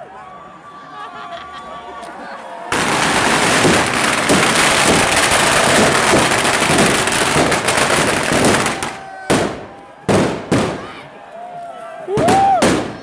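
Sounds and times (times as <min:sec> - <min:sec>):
fireworks crackling: 0:02.7 - 0:10.9.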